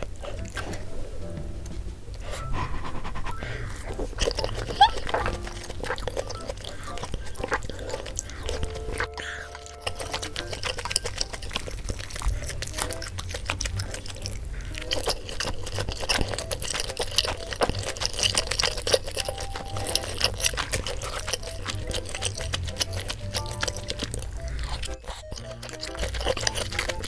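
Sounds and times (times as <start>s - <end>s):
chewing mouth noises: 0.0s - 1.3s, 2.1s - 27.0s
soft background music: 0.0s - 27.0s.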